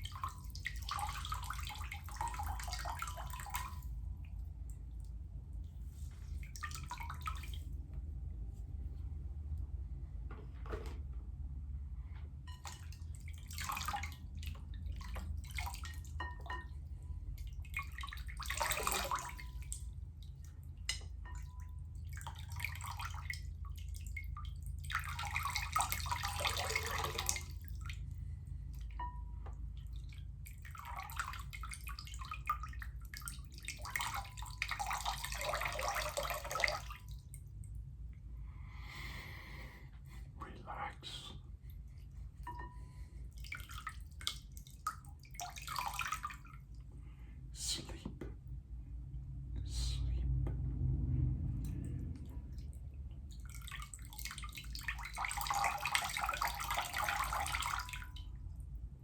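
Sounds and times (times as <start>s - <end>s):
water splashing and pouring: 0.0s - 4.0s, 5.9s - 7.8s, 12.5s - 20.5s, 21.2s - 28.1s, 29.8s - 37.3s, 43.4s - 46.7s, 51.6s - 58.4s
water dripping: 0.0s - 8.0s, 12.5s - 37.8s, 41.9s - 46.8s, 51.6s - 58.8s
steady low hum: 0.0s - 59.0s.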